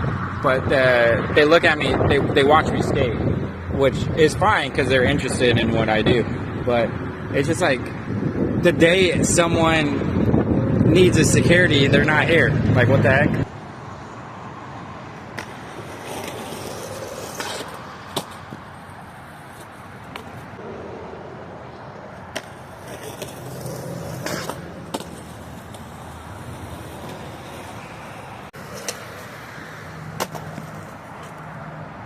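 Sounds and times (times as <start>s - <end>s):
skateboard rolling on concrete: 14.9s - 32.0s
skateboard clacking on ground: 15.3s - 21.1s, 22.0s - 29.4s, 30.1s - 31.4s.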